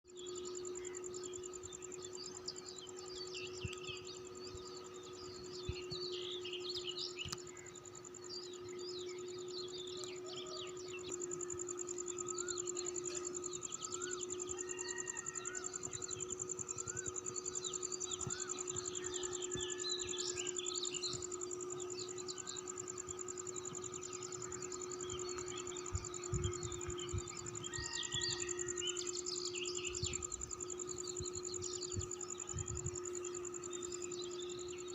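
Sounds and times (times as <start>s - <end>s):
high-pitched insect trill: 0.1s - 34.9s
birds chirping and calling: 12.3s - 33.9s.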